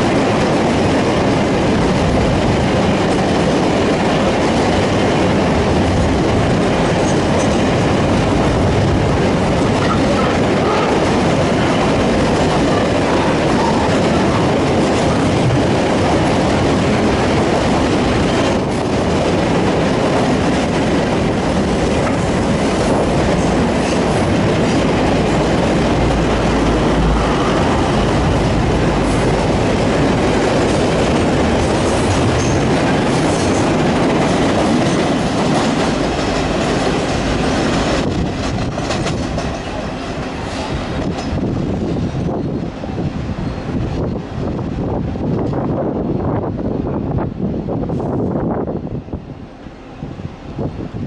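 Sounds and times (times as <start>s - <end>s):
steel wheels rumbling on rails: 0.0s - 51.0s.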